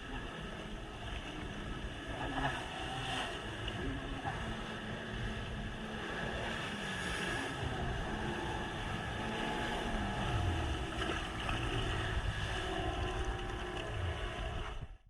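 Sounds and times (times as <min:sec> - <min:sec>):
jet ski engine running: 0:00.0 - 0:15.0
water noise: 0:00.0 - 0:15.0
wind noise: 0:03.8 - 0:15.0.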